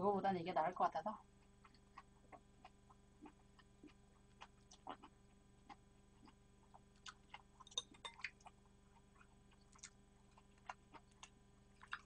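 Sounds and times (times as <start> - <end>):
mouth clicks and wet smacks chewing: 1.5 - 12.0.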